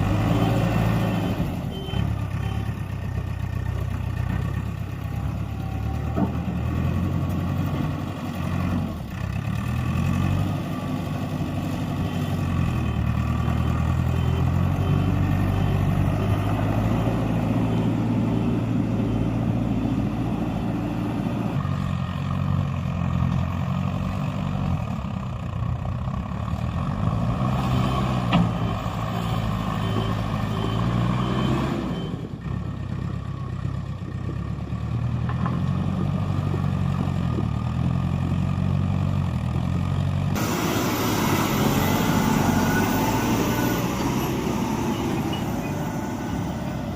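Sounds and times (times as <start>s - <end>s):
diesel engines revving: 0.0s - 46.9s
reversing alarm beeping: 13.3s - 18.6s, 28.6s - 32.3s, 40.4s - 46.9s.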